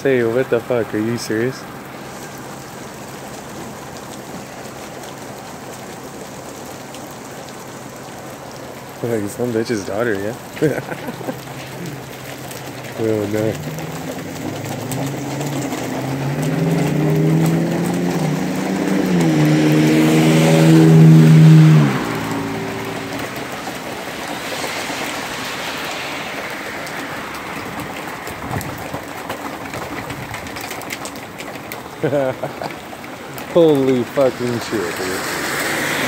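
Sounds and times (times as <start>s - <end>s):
heavy rain on pavement: 0.0s - 36.0s
tyres hissing on wet road: 0.0s - 36.0s
passing vehicle engine hum: 10.4s - 28.9s, 33.3s - 36.0s.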